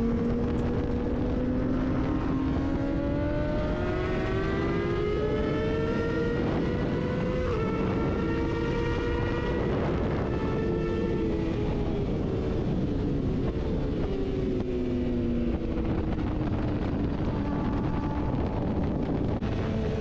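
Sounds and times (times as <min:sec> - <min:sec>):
motorcycle engine at high revs: 0:00.0 - 0:20.0
wind and road rush: 0:00.0 - 0:20.0.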